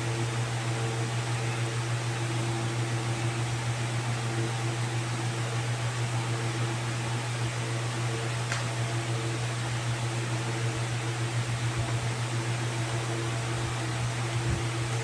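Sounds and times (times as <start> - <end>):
steady low machine hum: 0.0 - 15.0
continuous hiss: 4.2 - 15.0.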